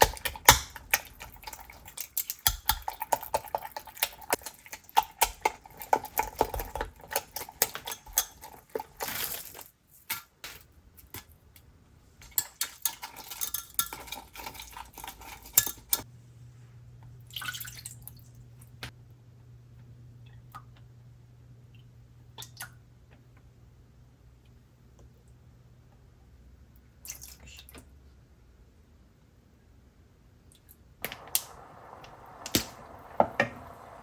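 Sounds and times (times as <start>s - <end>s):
dishes and utensils clattering: 12.2s - 16.0s
low steady hum: 16.1s - 26.8s, 31.0s - 34.0s.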